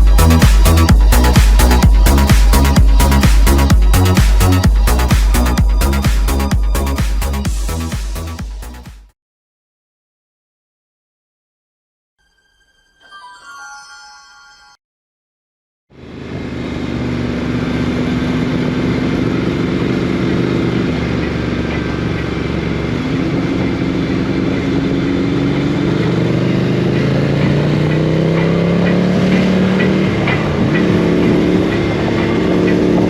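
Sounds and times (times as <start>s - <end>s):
motorcycle engine accelerating: 0.0s - 8.4s, 15.9s - 33.0s.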